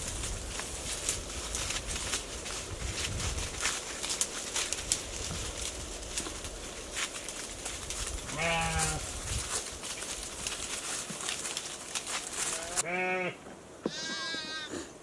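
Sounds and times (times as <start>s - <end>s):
rustling crackling background: 0.0s - 14.4s
sheep bleating: 8.3s - 9.0s, 12.5s - 14.8s.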